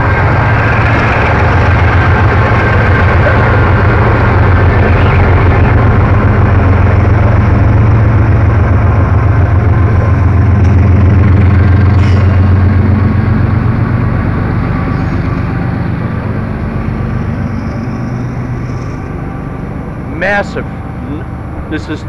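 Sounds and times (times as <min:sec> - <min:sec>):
diesel locomotives droning: 0:00.0 - 0:22.0
freight cars rolling past: 0:00.0 - 0:22.0.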